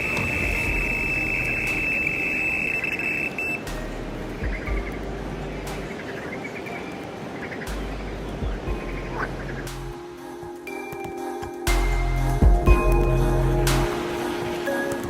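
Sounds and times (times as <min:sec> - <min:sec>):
electronic bite alarm tone: 0:00.0 - 0:03.6.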